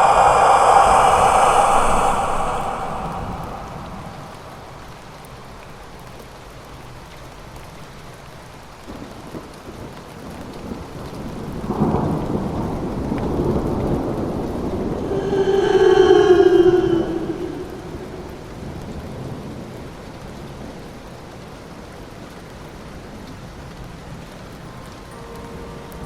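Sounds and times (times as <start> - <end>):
drawn-out pitched wail: 0.0 - 5.3, 14.9 - 18.8
thunder rumbling: 0.0 - 5.6, 11.7 - 19.5
rain falling: 0.0 - 26.0.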